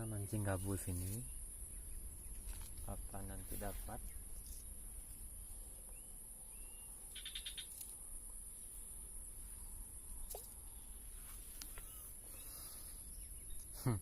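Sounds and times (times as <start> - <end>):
rapid chirping call: 5.9 - 8.0
high-pitched insect drone: 6.6 - 9.6.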